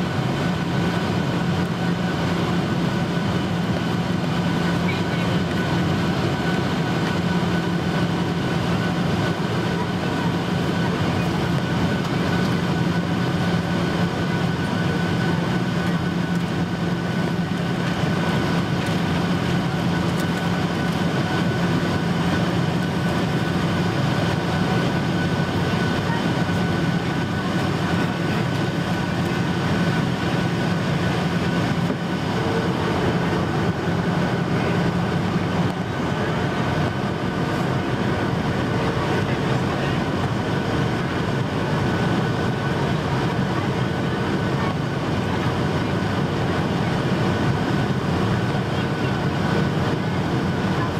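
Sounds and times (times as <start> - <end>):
airplane cabin airflow rush: 0.0 - 50.9
jet engine noise: 0.0 - 50.9.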